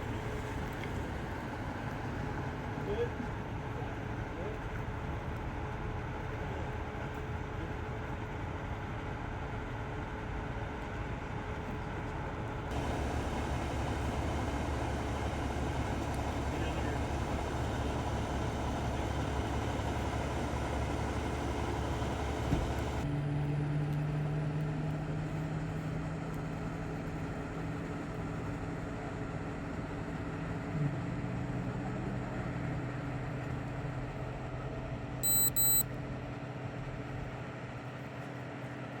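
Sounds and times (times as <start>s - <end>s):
vehicle engine idling: 12.7s - 23.0s
short high-pitched beeps: 35.2s - 35.8s.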